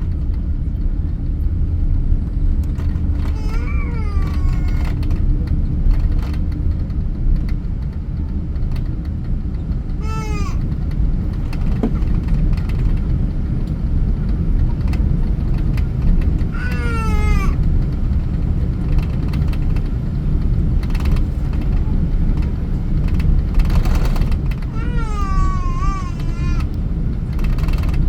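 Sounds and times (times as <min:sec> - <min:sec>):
jet airliner cabin roar: 0:00.0 - 0:28.0
baby crying: 0:03.3 - 0:05.0, 0:10.0 - 0:10.7, 0:16.6 - 0:17.6, 0:24.7 - 0:26.8.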